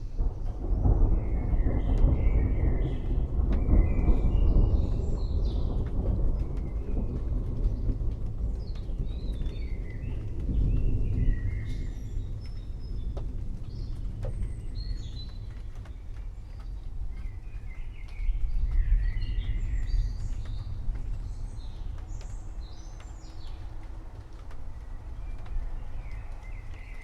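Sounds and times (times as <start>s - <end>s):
distant thunder rumble: 0.0s - 27.0s.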